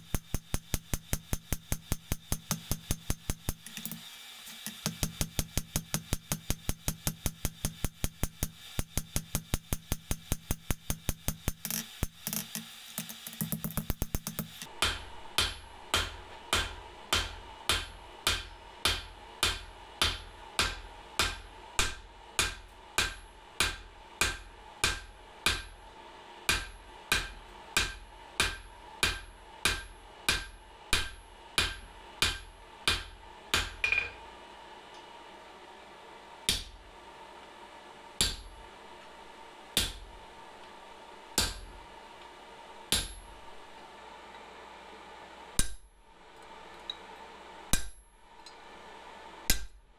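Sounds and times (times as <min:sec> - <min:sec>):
hammer striking steel on anvil: 0:00.0 - 0:04.0, 0:04.6 - 0:25.8, 0:26.5 - 0:34.2, 0:36.5 - 0:36.8, 0:38.2 - 0:38.6, 0:39.8 - 0:40.1, 0:41.4 - 0:41.7, 0:42.9 - 0:43.3, 0:45.6 - 0:45.9, 0:47.7 - 0:48.1, 0:49.5 - 0:49.8.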